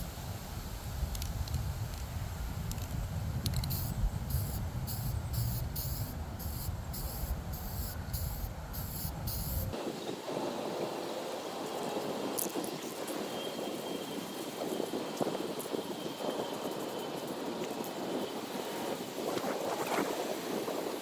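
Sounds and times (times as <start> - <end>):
wind rumbling on microphone: 0.0 - 21.0
spray paint can hissing: 3.5 - 9.8.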